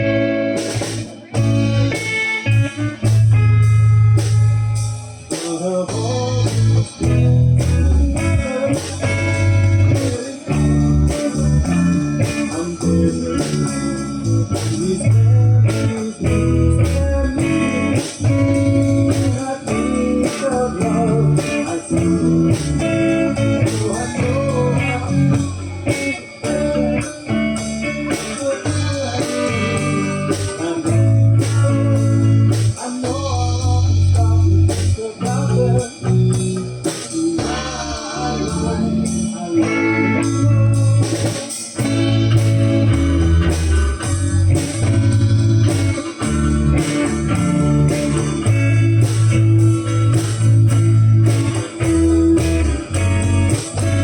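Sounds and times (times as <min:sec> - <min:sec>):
bass guitar: 0:00.0 - 0:54.0
electric guitar: 0:00.0 - 0:54.0.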